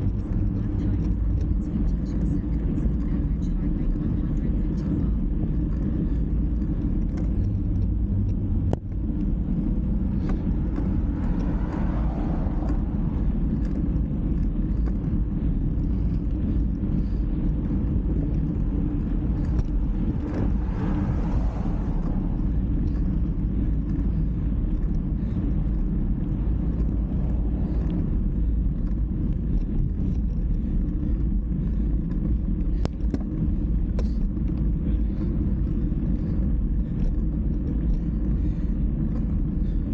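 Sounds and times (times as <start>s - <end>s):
wind and road rumble: 0.0s - 39.9s
rushing noise: 4.4s - 39.9s.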